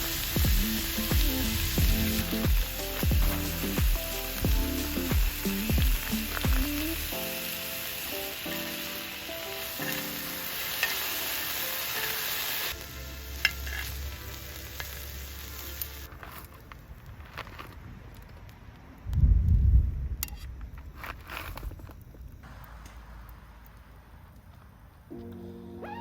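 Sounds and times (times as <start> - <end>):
food sizzling in a hot pan: 0.0 - 16.1.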